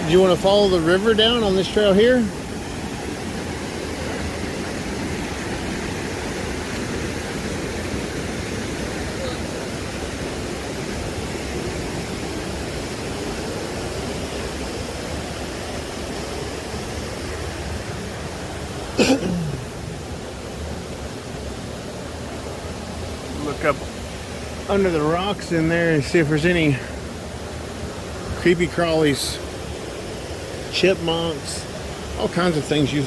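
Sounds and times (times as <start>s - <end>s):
river and small waterfalls rushing: 0.0s - 33.0s.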